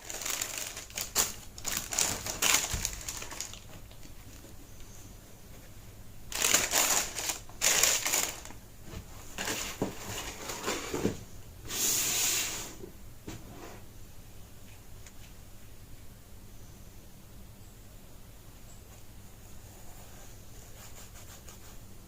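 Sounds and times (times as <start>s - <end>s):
packaging rustling: 0.0s - 4.5s, 6.3s - 8.6s, 9.3s - 11.0s.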